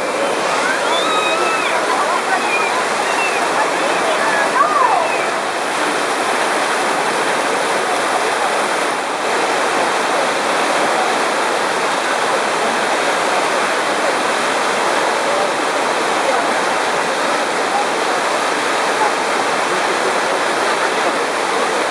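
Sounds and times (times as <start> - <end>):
water rushing through channel: 0.0 - 21.9.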